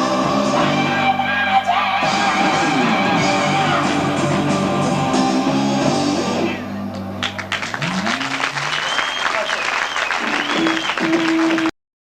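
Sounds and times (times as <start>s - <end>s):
rock band playing live: 0.0s - 7.5s.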